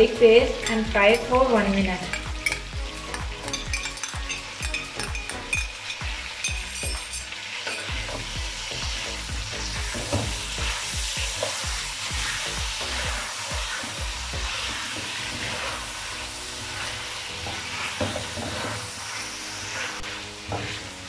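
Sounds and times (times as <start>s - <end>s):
chicken sizzling in hot oil: 0.0s - 21.0s
spatula scraping a pan: 9.7s - 21.0s.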